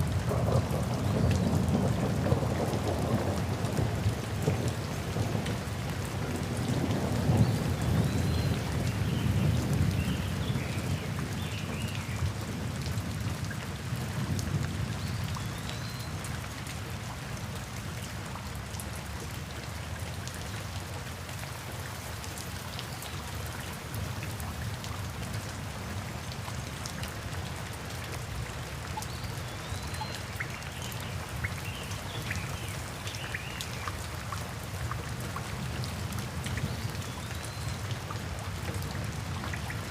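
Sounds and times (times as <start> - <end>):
steady rain: 0.0 - 39.9
rolling thunder: 0.1 - 5.7.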